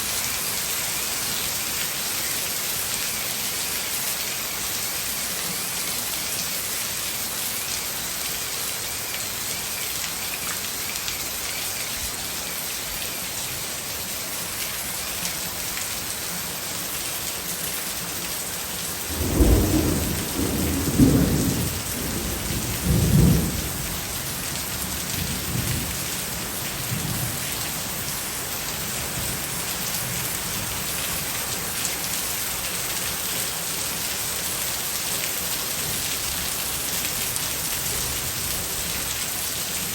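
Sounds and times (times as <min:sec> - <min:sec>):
heavy rain falling: 0:00.0 - 0:39.9
thunder rumbling: 0:19.1 - 0:24.0.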